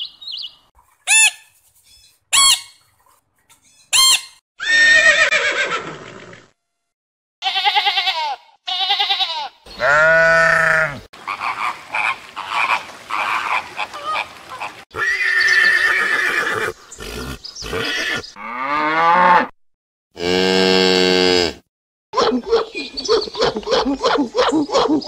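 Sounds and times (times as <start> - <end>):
horses whinnying and neighing: 4.6 - 6.5, 14.9 - 19.5
sheep bleating: 7.4 - 11.1.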